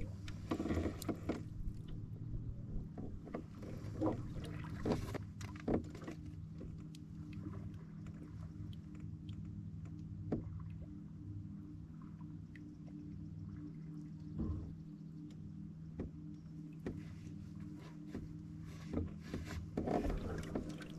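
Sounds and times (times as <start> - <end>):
paddle strokes in water: 0.0 - 2.1, 2.8 - 9.5, 16.0 - 20.9
low engine-like hum: 0.0 - 20.9.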